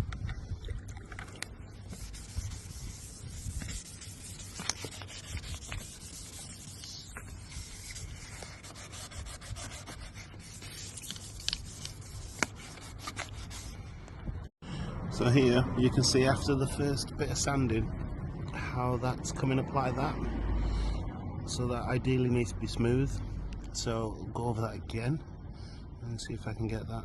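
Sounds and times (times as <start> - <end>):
sharp scrapes and clicks: 1.0 - 13.7
sandpaper rubbing on paint: 1.9 - 13.8.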